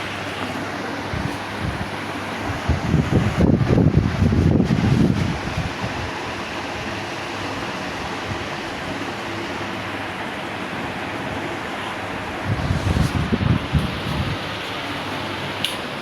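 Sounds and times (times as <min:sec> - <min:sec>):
ceiling fan air rush: 0:00.0 - 0:16.0
wind buffeting microphone: 0:01.0 - 0:07.0, 0:12.3 - 0:14.6.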